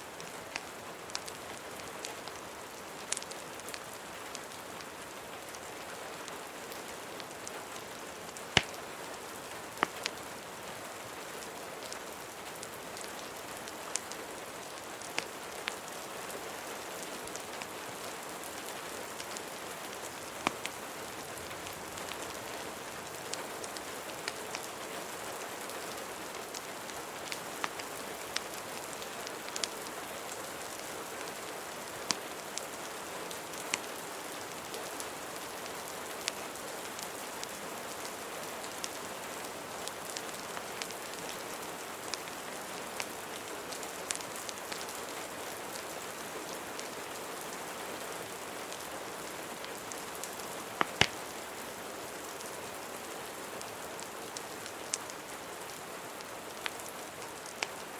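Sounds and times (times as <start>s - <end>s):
steady rain: 0.0s - 57.9s
wood fire crackling and popping: 0.2s - 5.6s, 6.7s - 9.0s, 9.6s - 10.2s, 12.6s - 15.9s, 17.2s - 24.8s, 25.8s - 32.7s, 39.8s - 45.0s, 49.6s - 51.5s, 53.6s - 57.8s.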